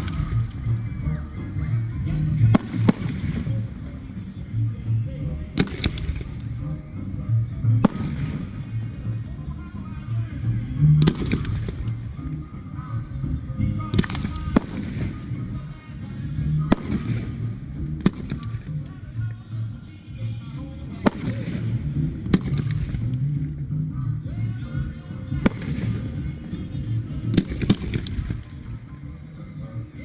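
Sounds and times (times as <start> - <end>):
fireworks bursting with bangs: 0.0 - 0.8, 1.4 - 4.3, 5.6 - 6.7, 7.8 - 9.3, 10.9 - 12.3, 13.9 - 15.6, 16.7 - 18.9, 21.0 - 23.3, 25.4 - 28.9
background music: 0.0 - 30.0.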